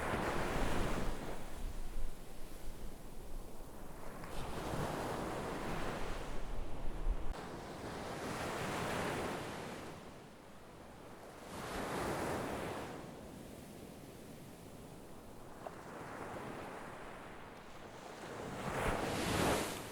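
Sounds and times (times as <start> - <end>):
wind rumble on microphone: 0.0 - 7.5
sea waves breaking: 0.0 - 9.8, 15.6 - 19.9.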